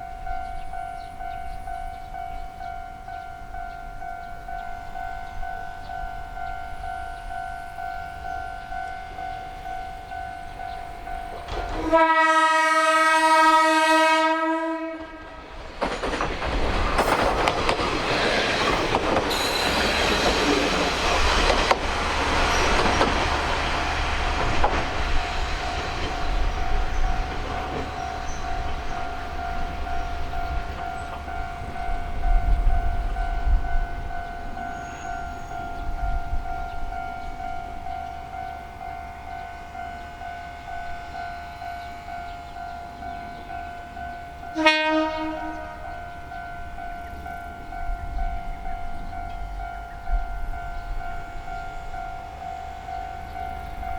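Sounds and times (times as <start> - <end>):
train engine and wheel noise: 0.0 - 53.9
rail clatter: 10.4 - 34.6
train horn blast: 11.4 - 15.4, 44.4 - 46.2.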